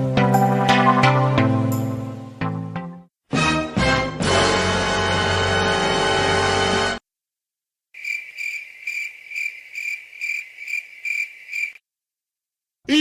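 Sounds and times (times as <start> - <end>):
music clip: 0.0 - 7.0
crickets chirping: 8.0 - 11.8.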